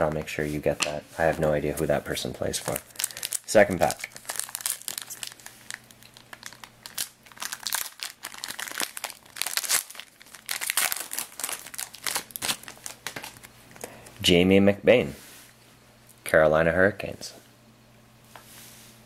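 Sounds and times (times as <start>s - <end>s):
wrapper crinkling: 2.5s - 13.9s.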